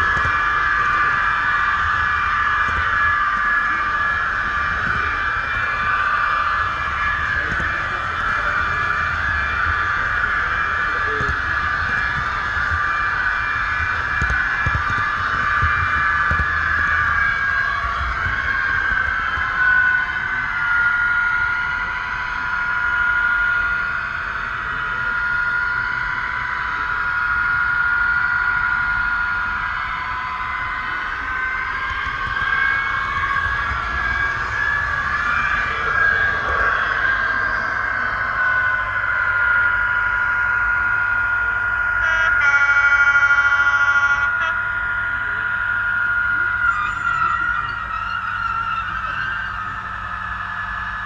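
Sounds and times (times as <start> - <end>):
model train rolling noise: 0.0 - 51.0
model train whine: 0.0 - 51.0
model train horn: 42.0 - 44.9.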